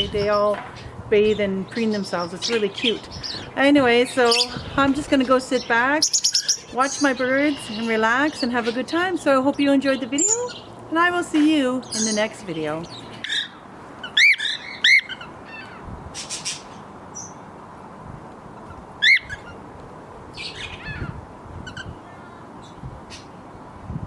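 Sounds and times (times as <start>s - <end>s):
steady background hiss: 0.0s - 24.0s
small bird chirps: 5.6s - 8.4s.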